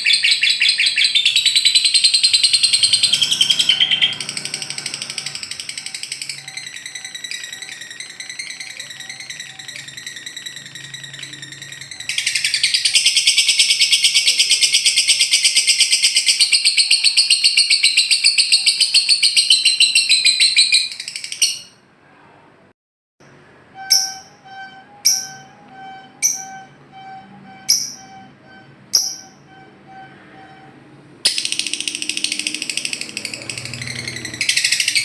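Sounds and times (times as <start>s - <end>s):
lovebird chattering: 0.0s - 21.7s, 27.6s - 30.1s, 31.3s - 35.0s
sharp bird calls: 0.0s - 21.8s, 31.3s - 35.0s.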